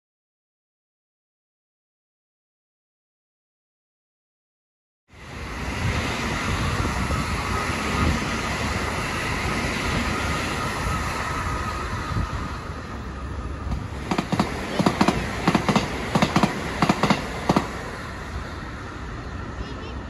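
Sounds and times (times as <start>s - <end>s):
train wheel and rail noise: 5.1s - 20.0s.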